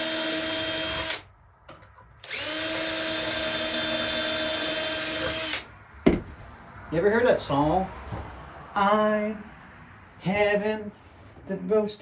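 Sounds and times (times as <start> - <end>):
power drill running: 0.0 - 1.3, 2.2 - 5.7.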